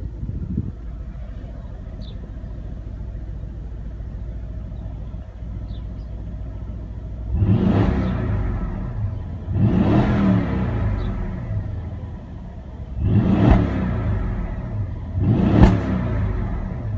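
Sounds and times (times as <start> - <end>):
car engine idling and revving: 0.0 - 16.9.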